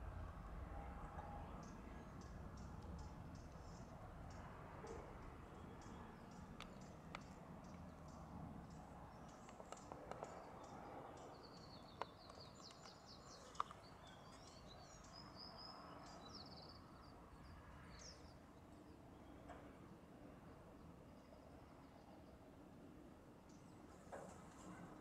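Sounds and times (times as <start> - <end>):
small birds chirping: 1.6 - 19.8.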